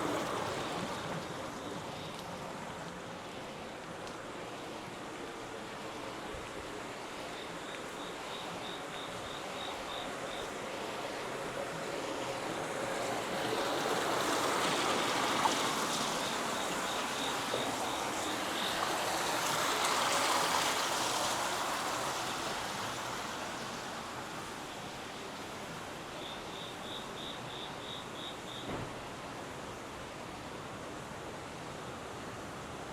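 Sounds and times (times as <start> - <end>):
rushing water: 0.0 - 32.9
insect chirping: 7.0 - 11.0, 15.6 - 18.8, 26.1 - 28.8.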